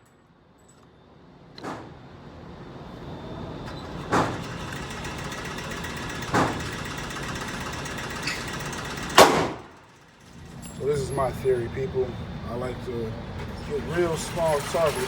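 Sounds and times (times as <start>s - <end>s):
gunshots: 9.2s - 9.7s
steady low rumble: 10.3s - 14.5s.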